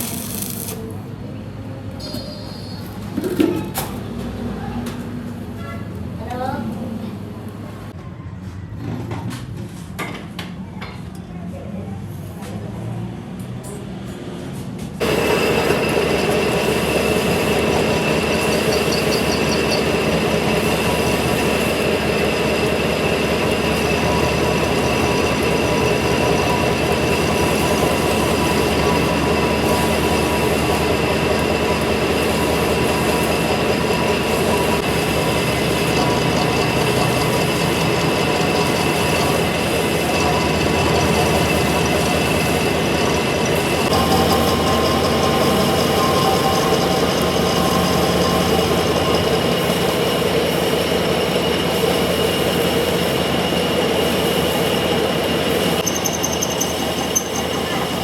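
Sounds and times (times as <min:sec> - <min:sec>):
metal lathe machining with whine: 0:15.0 - 0:58.0.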